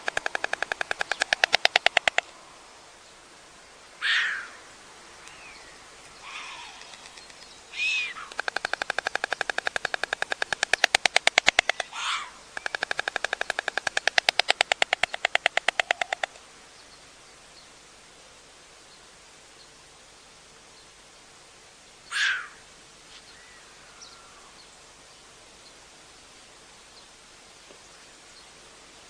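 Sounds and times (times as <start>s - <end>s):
storks bill-clattering: 0.0s - 2.3s, 6.3s - 7.5s, 8.2s - 16.4s.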